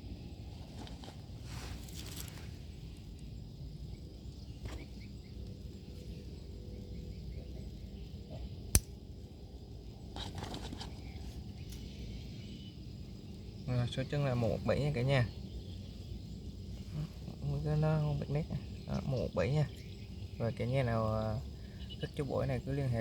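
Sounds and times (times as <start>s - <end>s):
outdoor background rumble: 0.0s - 23.0s
sharp click: 8.8s - 9.0s.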